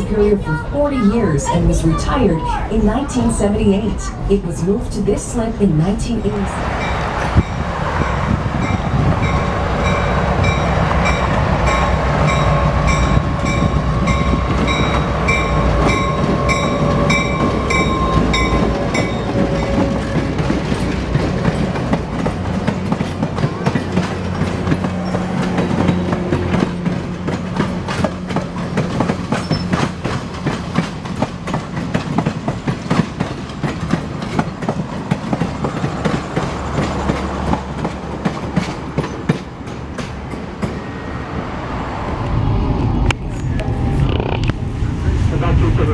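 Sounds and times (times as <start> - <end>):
train wheels clicking on rails: 4.6 - 41.0
pulsing pitched ringing: 8.6 - 19.7.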